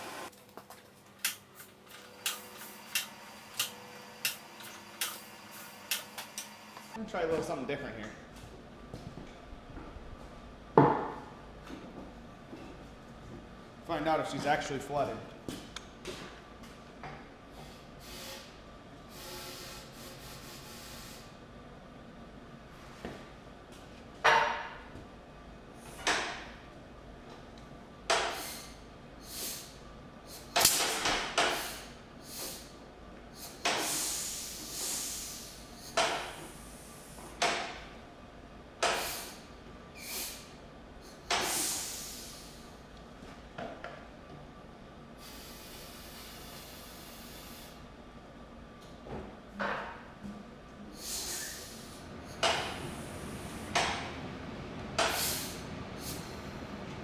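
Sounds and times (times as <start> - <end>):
sharp metallic clanks: 1.1 - 7.0.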